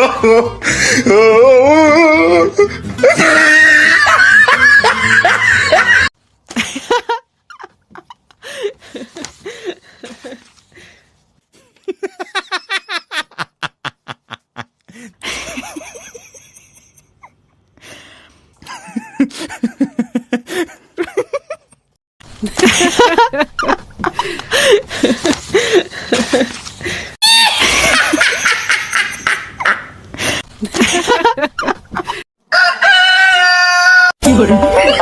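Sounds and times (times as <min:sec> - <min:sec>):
people laughing: 0:03.0 - 0:10.5, 0:11.6 - 0:17.1, 0:22.4 - 0:26.6, 0:27.2 - 0:32.2.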